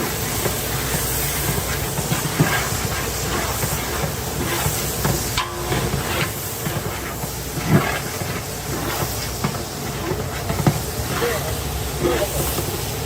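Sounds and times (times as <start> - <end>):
cooking pot hissing: 0.0 - 13.0
metal utensil knocking pot: 3.3 - 12.7.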